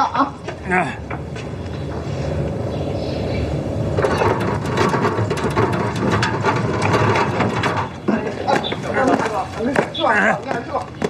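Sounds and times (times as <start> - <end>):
mechanical rumble: 0.4 - 9.6
rapid clatter of sharp clicks: 4.0 - 9.4.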